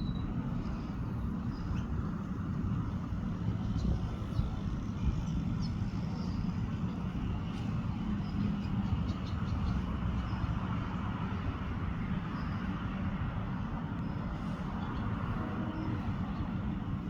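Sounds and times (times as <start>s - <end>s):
sparrows chirping: 0.0s - 12.7s.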